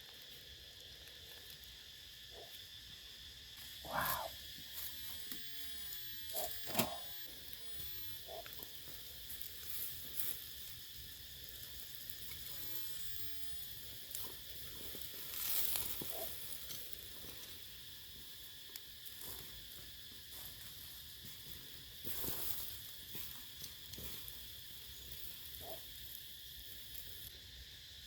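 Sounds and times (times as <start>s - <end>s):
insects chorus: 0.0s - 28.0s.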